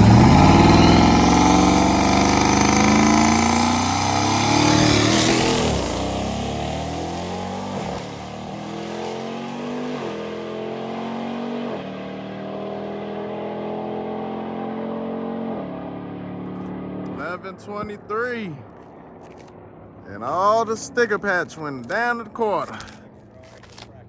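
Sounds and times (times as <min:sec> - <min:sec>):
drag car engine at full throttle: 0:00.0 - 0:18.0.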